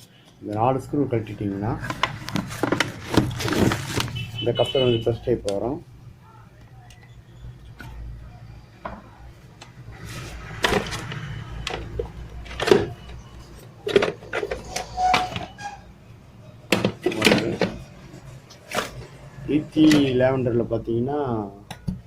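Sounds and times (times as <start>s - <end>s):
plastic and metal parts clattering: 1.4s - 4.4s, 10.2s - 15.6s, 16.7s - 19.1s, 19.8s - 20.2s.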